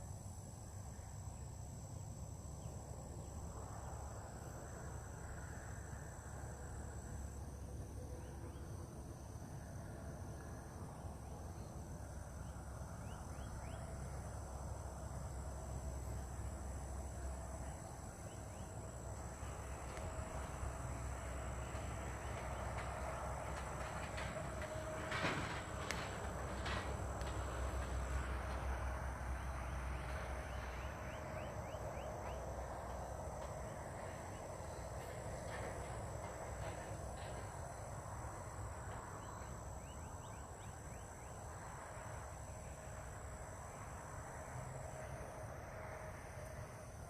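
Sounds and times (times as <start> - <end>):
high insect drone: 0.0 - 47.0
low outdoor rumble: 0.0 - 47.0.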